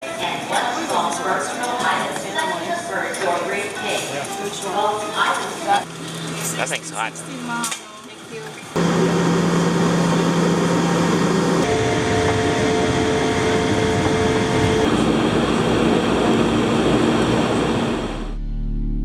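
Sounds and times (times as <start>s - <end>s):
vehicle running noise: 8.7s - 19.0s
steady hum jumping in pitch: 8.8s - 19.0s.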